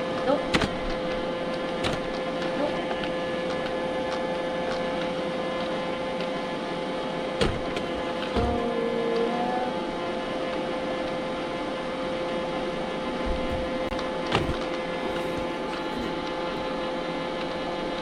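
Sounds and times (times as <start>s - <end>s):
robot vacuum cleaner running: 0.6s - 16.9s
vacuum bumping with sharp knock: 1.8s - 2.2s, 7.4s - 8.8s, 13.2s - 16.7s.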